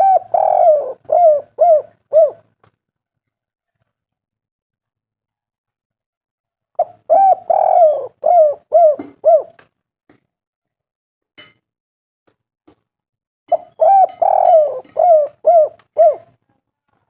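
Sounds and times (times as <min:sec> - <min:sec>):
dove cooing: 0:00.0 - 0:02.5, 0:06.8 - 0:09.6, 0:13.5 - 0:16.4.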